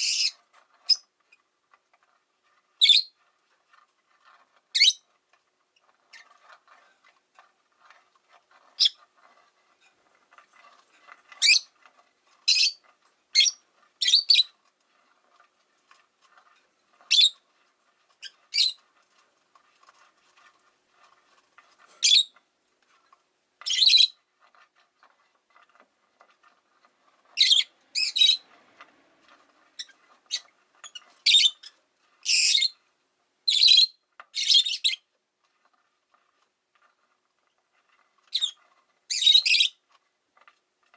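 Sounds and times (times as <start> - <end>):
lovebirds shrill calls: 27.4 - 28.4, 31.2 - 31.6, 32.3 - 32.7.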